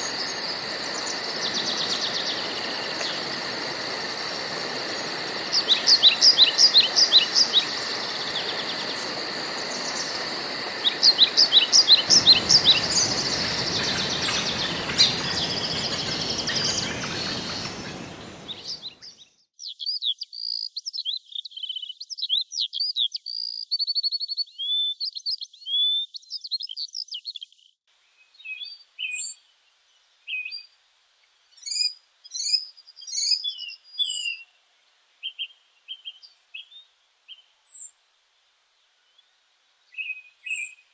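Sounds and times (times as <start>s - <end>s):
high-pitched pulsing forest hiss: 0.0s - 19.1s
birds singing and chirping: 0.0s - 23.7s.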